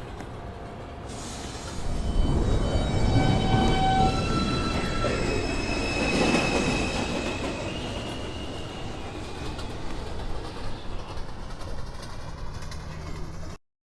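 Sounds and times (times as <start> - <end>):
subway train rumbling: 0.0 - 13.6
high whining tones: 1.1 - 11.7.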